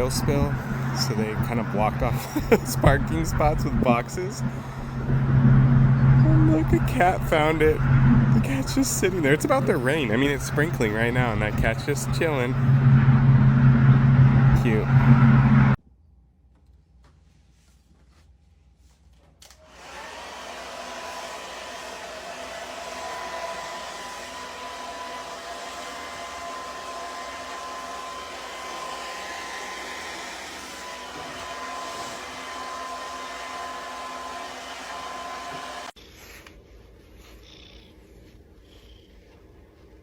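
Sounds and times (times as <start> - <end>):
small electric motor whining: 19.6 - 36.0.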